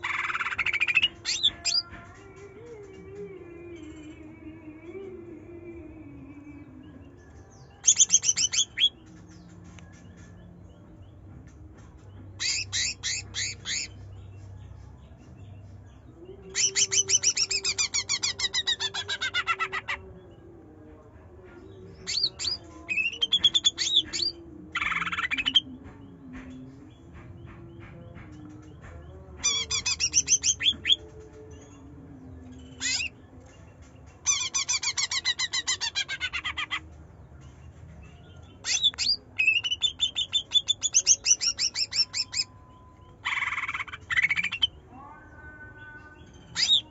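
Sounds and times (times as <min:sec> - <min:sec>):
bird singing trills and chatter: 0:00.0 - 0:46.9.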